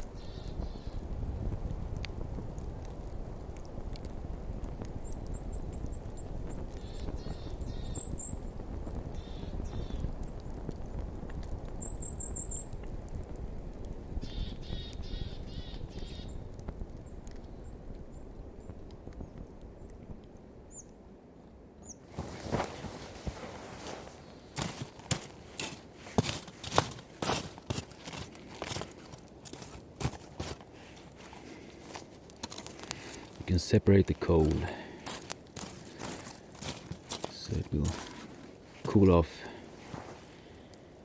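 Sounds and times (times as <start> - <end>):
small birds chirping: 0.0 - 1.0, 5.0 - 10.5, 11.7 - 12.9, 14.2 - 21.0, 21.8 - 22.8
low rumble of wind: 0.0 - 41.0.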